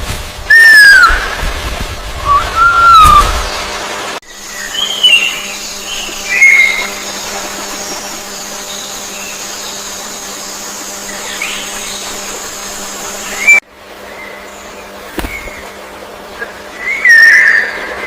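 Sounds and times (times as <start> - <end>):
thin high whine: 0.0 - 13.6.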